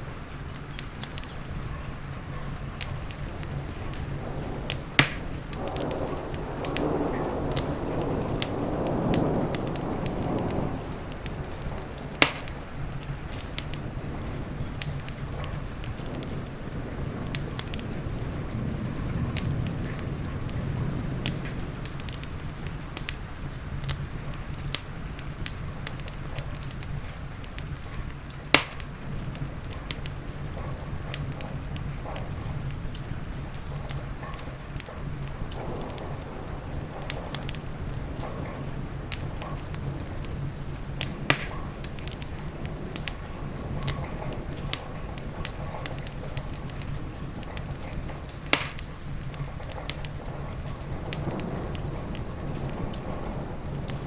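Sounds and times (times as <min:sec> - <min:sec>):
steady low rumble: 0:00.0 - 0:54.0
wood fire crackling and popping: 0:00.0 - 0:54.0.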